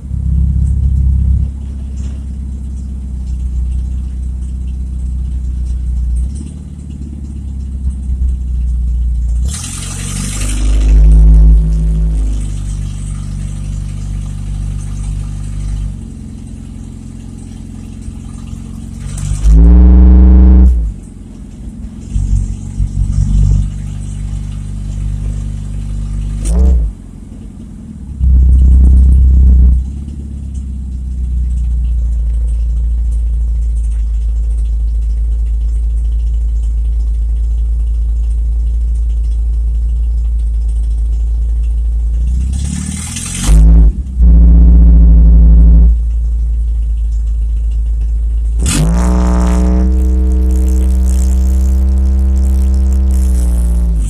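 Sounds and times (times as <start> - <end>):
loud car engine revving: 9.3 - 13.8, 19.0 - 21.1, 22.0 - 24.5, 26.3 - 27.0, 28.1 - 30.2, 42.4 - 46.0, 48.6 - 54.0.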